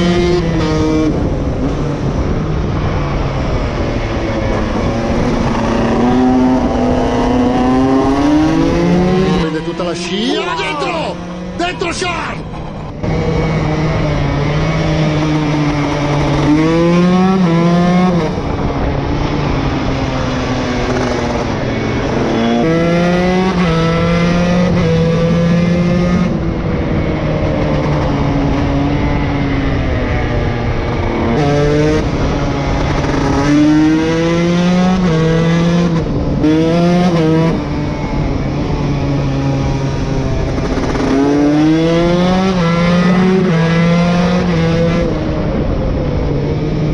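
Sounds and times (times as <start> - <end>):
two-stroke engine revving: 39.7 - 45.2.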